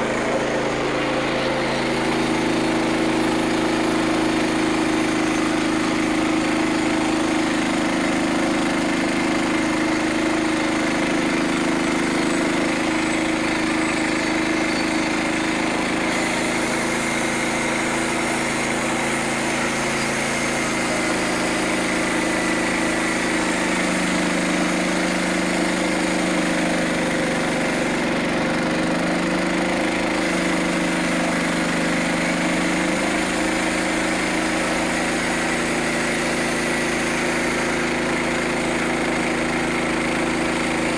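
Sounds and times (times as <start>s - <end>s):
gasoline engine running: 0.0s - 40.9s.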